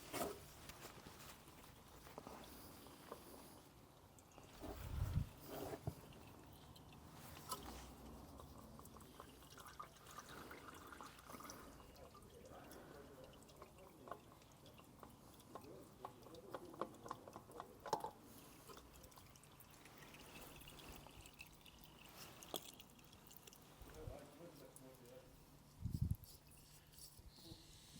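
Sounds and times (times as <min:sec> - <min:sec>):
oil dripping: 0:00.0 - 0:27.2.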